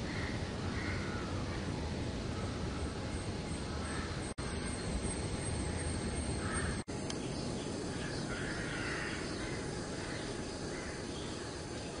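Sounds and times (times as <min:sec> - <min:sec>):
bird cawing: 0:00.0 - 0:04.8, 0:05.4 - 0:06.9, 0:07.9 - 0:11.8
outdoor background hiss: 0:00.0 - 0:12.0.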